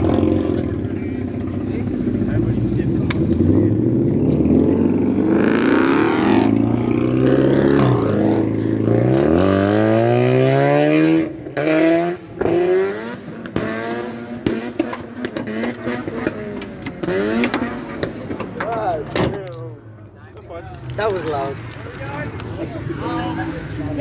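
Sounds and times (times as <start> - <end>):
car engine revving: 0.0 - 19.5.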